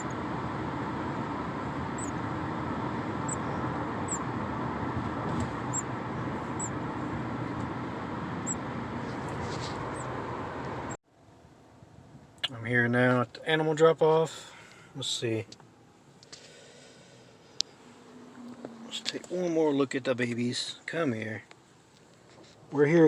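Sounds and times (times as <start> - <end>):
car road noise: 0.0 - 23.0
baby birds cheeping: 1.9 - 2.3, 3.2 - 4.3, 5.6 - 5.9, 6.5 - 6.8, 8.4 - 8.7.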